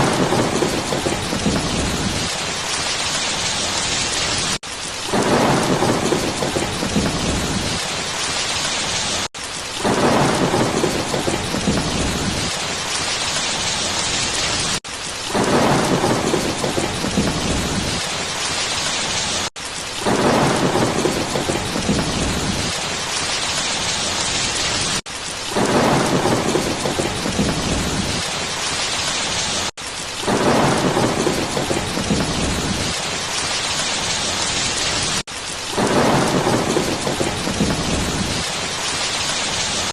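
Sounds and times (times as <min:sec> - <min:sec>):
low thunder rumble: 0:00.0 - 0:02.7, 0:05.1 - 0:08.0, 0:09.8 - 0:12.9, 0:15.3 - 0:18.2, 0:20.0 - 0:22.8, 0:25.5 - 0:28.3, 0:30.3 - 0:33.1, 0:34.2 - 0:38.7
rain hiss: 0:00.0 - 0:39.9.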